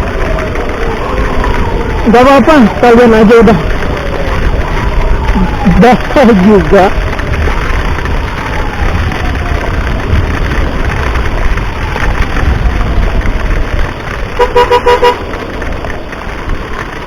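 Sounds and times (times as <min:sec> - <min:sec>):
faint siren wailing: 0:00.0 - 0:15.3
scooter road noise in rain: 0:00.0 - 0:17.0
wind rumble: 0:00.0 - 0:17.0
two-tone horn beeps: 0:14.4 - 0:15.2.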